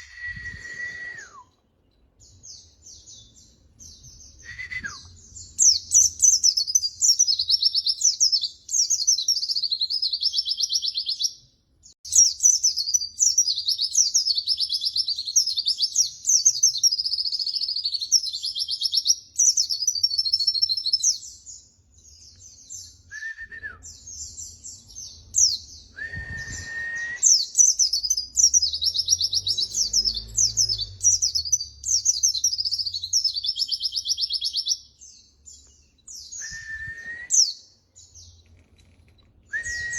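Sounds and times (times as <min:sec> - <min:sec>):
low whistled bird notes: 0:00.0 - 0:01.6, 0:02.5 - 0:11.2, 0:22.6 - 0:34.8, 0:36.1 - 0:37.6, 0:39.5 - 0:39.9
bird twittering rapidly: 0:26.4 - 0:34.8.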